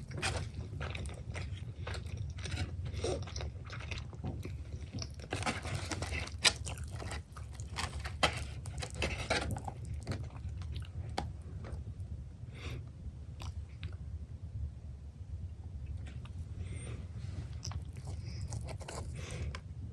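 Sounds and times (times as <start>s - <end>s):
chewing crunchy pizza: 0.0s - 12.0s, 17.5s - 19.7s.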